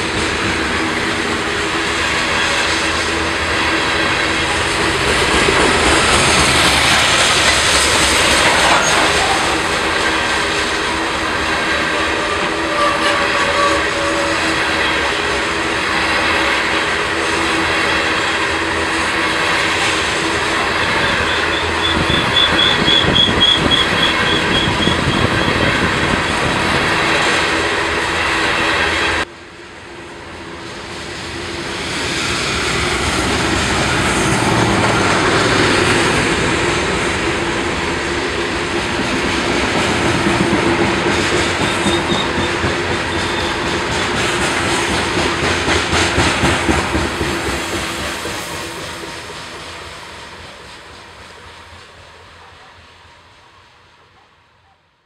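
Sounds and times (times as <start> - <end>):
wheels clacking over rail joints: 0.0 - 13.6, 38.7 - 49.5
train wheels rumbling on rail: 0.0 - 54.8
high pulsing squeal: 20.4 - 25.7.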